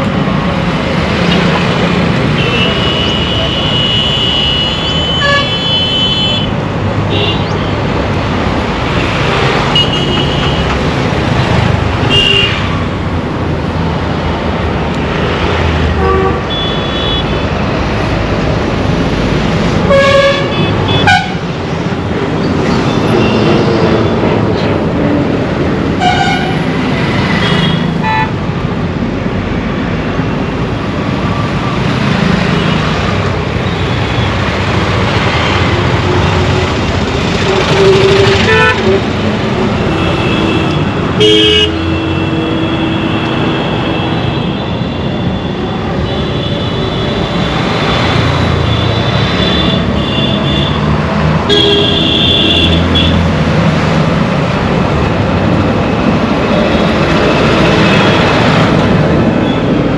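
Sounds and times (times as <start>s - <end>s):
road traffic din: 0.0s - 59.9s
vehicle horns honking: 2.3s - 7.6s, 9.7s - 10.7s, 12.0s - 12.8s, 16.0s - 17.5s, 19.8s - 21.5s, 26.0s - 26.6s, 39.9s - 45.1s, 51.5s - 53.2s.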